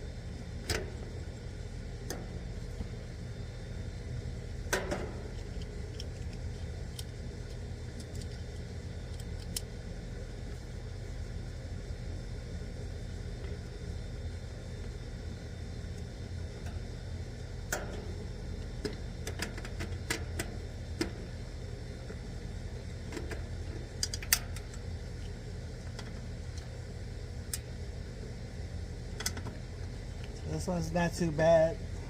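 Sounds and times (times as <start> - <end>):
steady low rumble: 0.0 - 32.0.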